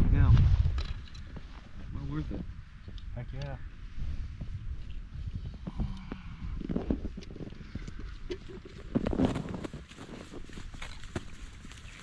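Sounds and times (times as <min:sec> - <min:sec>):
footsteps crunching in snow: 0:06.6 - 0:12.0.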